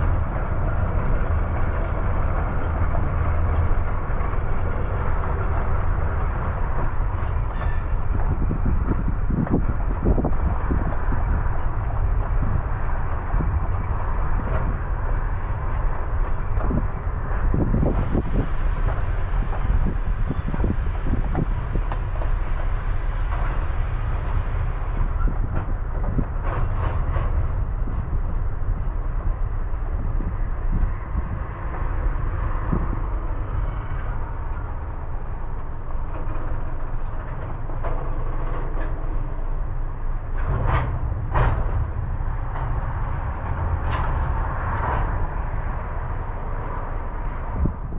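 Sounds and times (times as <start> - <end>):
train rumbling along track: 0.0 - 47.9
hiss: 17.8 - 25.1
clicks and clunks of wheels: 35.4 - 45.8.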